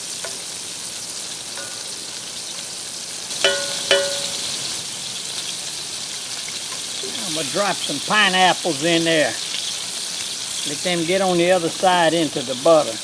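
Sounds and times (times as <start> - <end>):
corn sizzling in butter: 0.0 - 13.0
short ringing clinks: 3.3 - 4.6.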